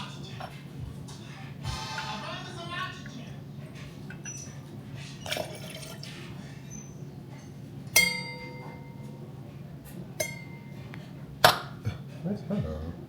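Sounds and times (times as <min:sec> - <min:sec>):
glass scraping: 0:04.1 - 0:08.3
glassware clinking: 0:05.2 - 0:06.2, 0:07.3 - 0:09.2, 0:10.2 - 0:10.8.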